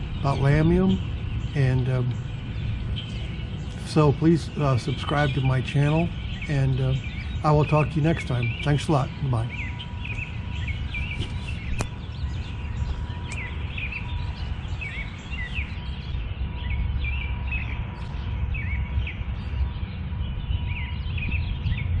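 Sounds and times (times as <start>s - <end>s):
songbirds chirping: 0.0s - 22.0s
steady low rumble: 0.0s - 22.0s.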